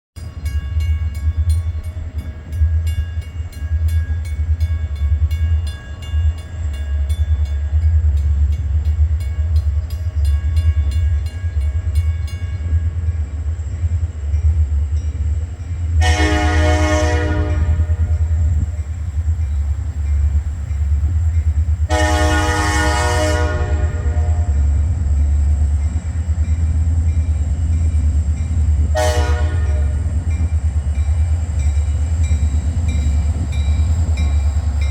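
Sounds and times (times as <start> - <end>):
locomotive rumbling: 0.2 - 34.9
locomotive air horn blasts: 16.0 - 18.4, 21.9 - 24.7, 28.9 - 30.1.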